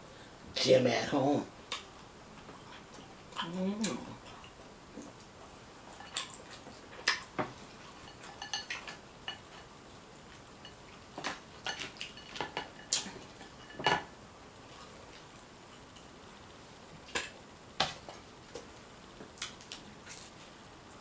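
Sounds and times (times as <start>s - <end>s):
utensils clinking on dishes: 8.0s - 9.6s.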